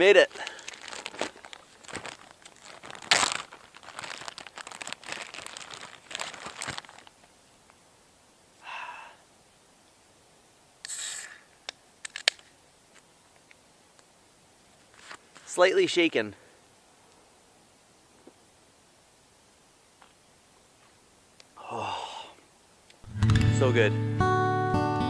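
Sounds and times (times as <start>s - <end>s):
plastic bag crinkling: 0.0s - 7.3s
beer can opening hiss: 10.8s - 12.5s.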